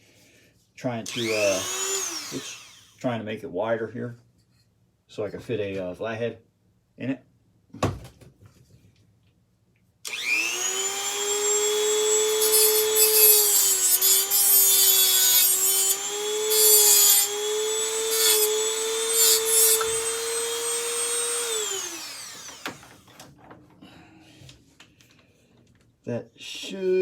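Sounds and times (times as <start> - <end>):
cutter grinding metal: 1.0 - 3.0, 10.1 - 23.1
rotary tool running: 1.1 - 3.0, 10.1 - 23.1.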